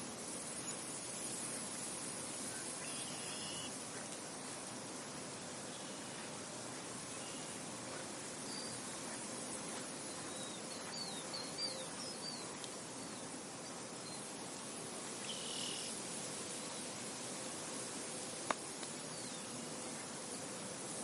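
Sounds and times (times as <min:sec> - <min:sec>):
soft wind: 0:00.0 - 0:21.0
birds chirping: 0:07.0 - 0:14.3.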